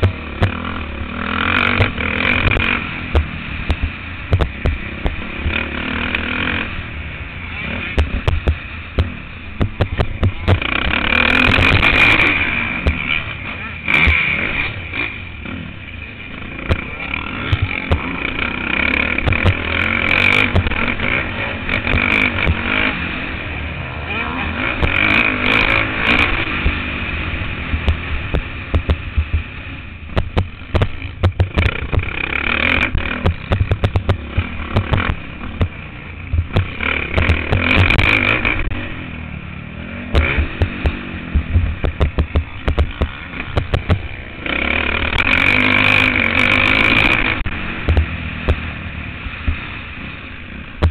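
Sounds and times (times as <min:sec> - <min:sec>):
motorbike engine revving: 0:00.0 - 0:50.9
sharp knocks and rattles: 0:08.0 - 0:13.1, 0:27.7 - 0:29.5, 0:30.1 - 0:38.8, 0:40.1 - 0:44.2.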